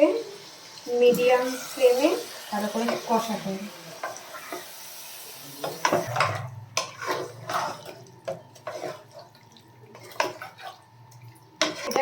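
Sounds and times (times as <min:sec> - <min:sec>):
meat sizzling in hot oil: 0:00.0 - 0:07.8
spatula scraping a pot: 0:05.7 - 0:09.3, 0:09.9 - 0:10.8, 0:11.6 - 0:12.0.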